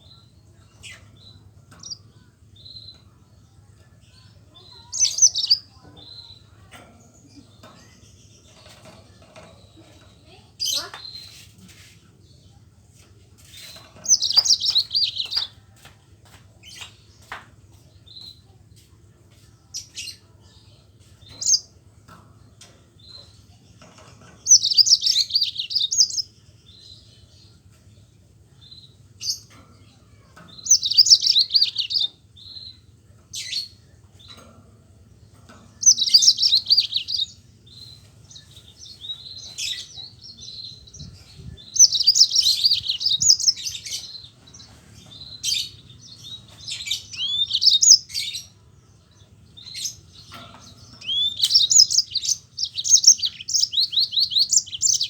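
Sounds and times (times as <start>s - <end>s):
canary trilled song: 0.0s - 11.6s, 13.4s - 15.6s, 19.3s - 55.0s
bird chips: 4.6s - 6.3s, 13.4s - 15.6s, 30.4s - 32.7s, 35.4s - 48.5s, 49.6s - 55.0s.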